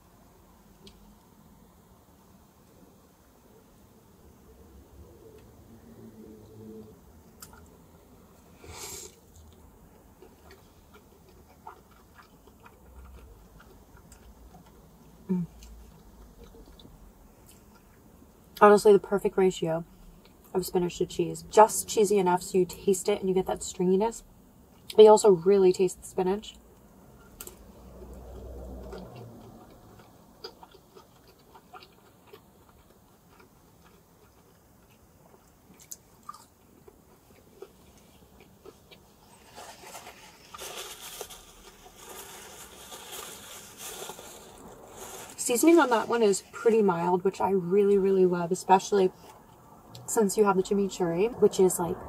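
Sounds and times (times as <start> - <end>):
person chewing food: 7.3 - 7.8, 8.4 - 18.0, 27.2 - 45.4.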